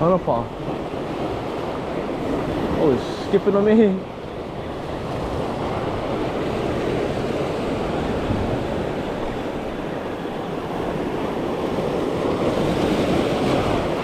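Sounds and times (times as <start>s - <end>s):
ocean surf washing on shore: 0.0s - 14.0s
wind on microphone: 4.0s - 14.0s.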